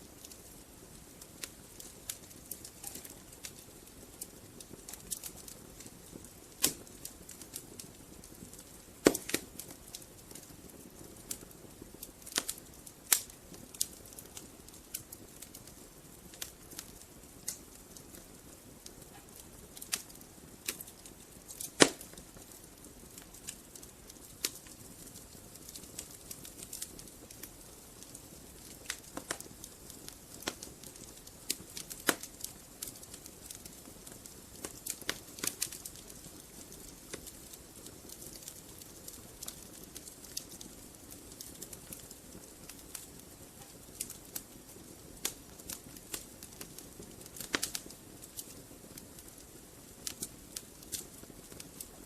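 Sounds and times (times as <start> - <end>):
faint steady hiss: 0.0 - 52.0
logs crackling and popping: 0.0 - 52.0.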